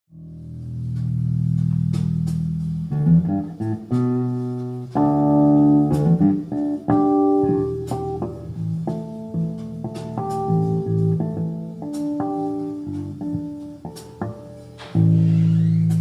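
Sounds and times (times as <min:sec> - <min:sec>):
guitar playing: 0:00.2 - 0:16.0.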